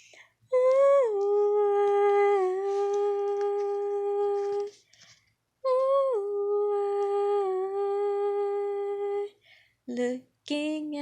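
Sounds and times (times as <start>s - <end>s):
person humming: 0.6s - 4.8s, 5.7s - 9.3s.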